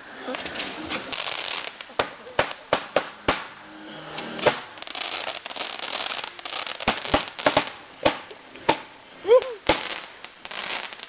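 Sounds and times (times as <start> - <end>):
firework crackling: 0.0 - 11.0
firework sharp pops: 0.4 - 3.6, 4.4 - 8.9, 9.6 - 11.0
firework bang: 2.0 - 3.6, 4.2 - 4.8.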